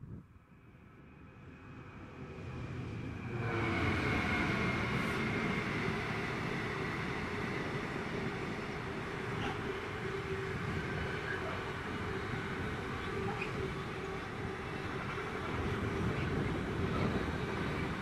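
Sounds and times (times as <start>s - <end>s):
freight train passing: 0.5s - 18.0s.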